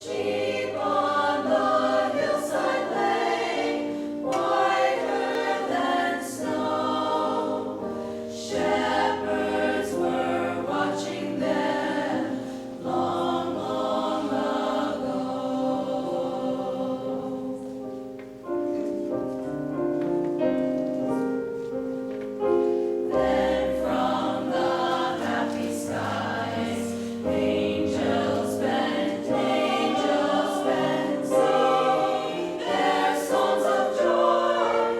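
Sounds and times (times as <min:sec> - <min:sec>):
choir singing carol: 0:00.0 - 0:21.5, 0:22.2 - 0:34.9.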